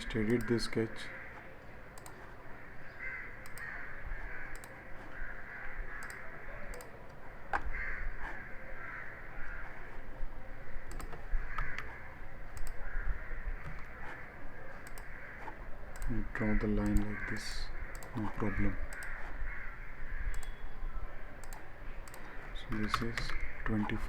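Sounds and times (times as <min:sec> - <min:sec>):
computer mouse clicks: 0:00.0 - 0:02.4, 0:03.4 - 0:08.4, 0:10.8 - 0:13.0, 0:13.6 - 0:19.4, 0:20.2 - 0:20.6, 0:21.4 - 0:24.0
bird calls: 0:00.3 - 0:06.9.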